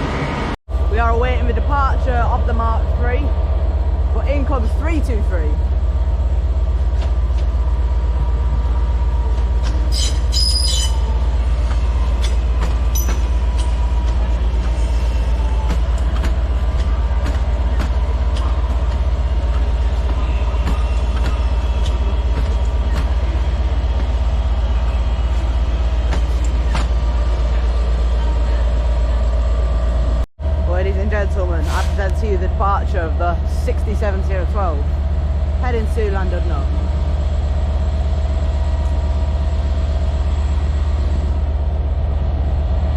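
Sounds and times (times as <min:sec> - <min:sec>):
diesel locomotive idling: 0:00.0 - 0:42.9
electric train arriving: 0:00.0 - 0:42.9
high wheel squeal: 0:09.6 - 0:11.2, 0:12.1 - 0:14.0.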